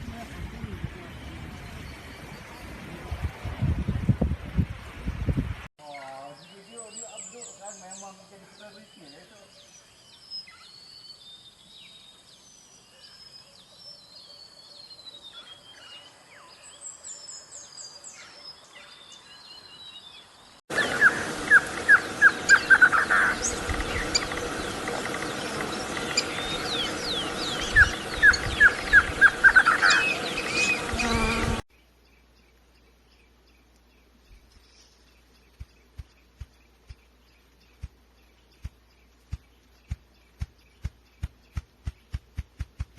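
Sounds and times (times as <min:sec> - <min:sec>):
birds chirping: 0:05.8 - 0:42.9.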